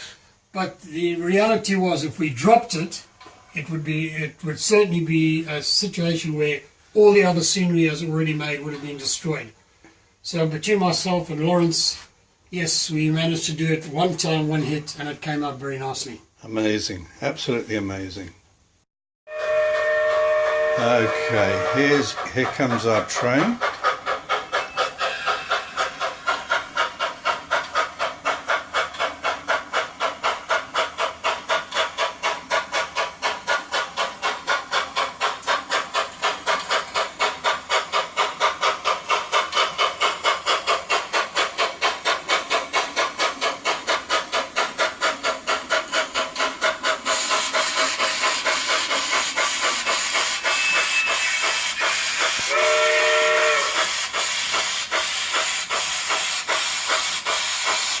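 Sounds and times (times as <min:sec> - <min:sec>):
steam locomotive chuffs: 0:00.0 - 0:18.7, 0:19.3 - 0:58.0
multi-tone train whistle: 0:19.3 - 0:23.5, 0:50.4 - 0:54.0
steam hiss: 0:20.7 - 0:58.0.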